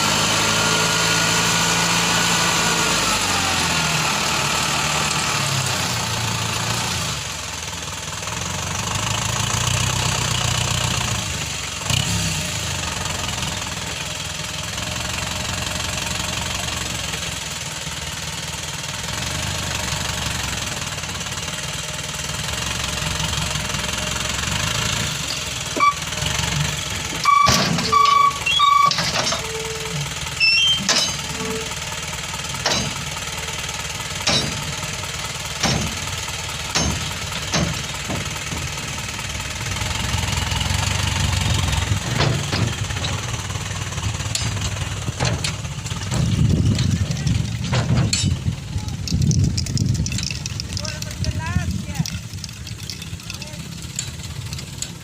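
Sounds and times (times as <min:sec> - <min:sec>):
diesel truck engine revving: 0:00.0 - 0:55.0
high-pitched beeps: 0:27.2 - 0:29.0.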